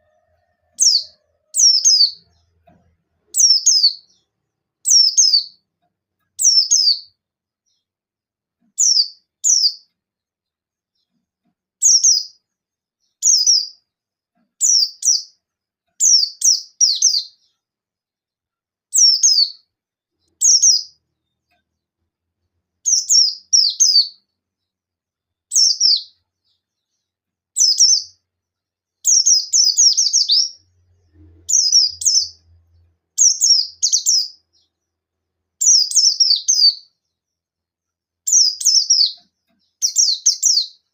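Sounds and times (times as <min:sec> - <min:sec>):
bird giving sharp high chirps: 0:04.8 - 0:05.6, 0:33.2 - 0:34.5.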